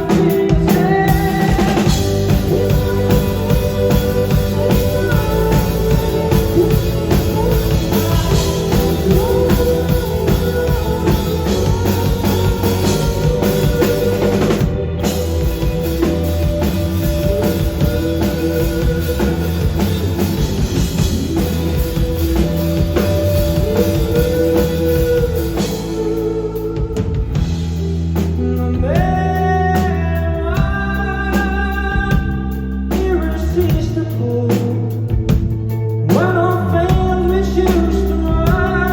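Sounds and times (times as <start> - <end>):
drum kit: 0.0 - 38.9
electric guitar: 0.0 - 38.9
person singing: 0.0 - 38.9.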